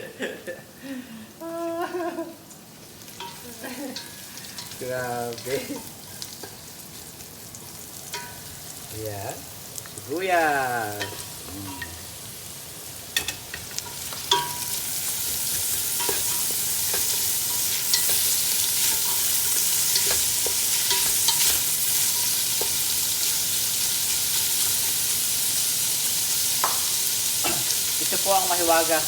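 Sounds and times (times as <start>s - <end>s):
onion sizzling in a pot: 1.3s - 29.0s.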